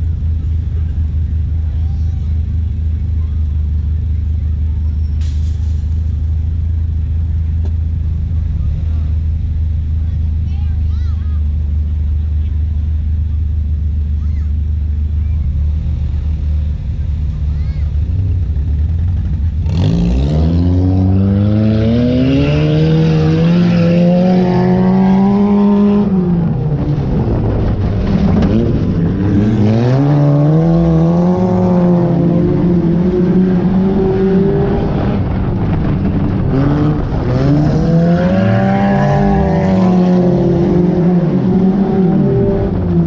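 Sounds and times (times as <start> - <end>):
race car engine revving: 11.6 - 43.0.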